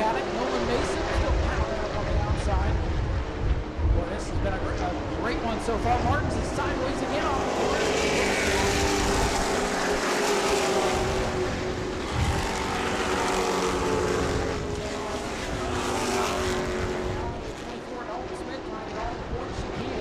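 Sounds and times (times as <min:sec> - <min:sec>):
race truck engines droning: 0:00.0 - 0:20.0.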